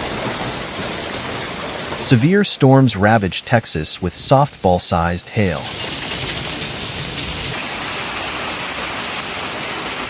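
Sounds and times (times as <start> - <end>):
hail or heavy rain pelting: 5.4 - 10.0.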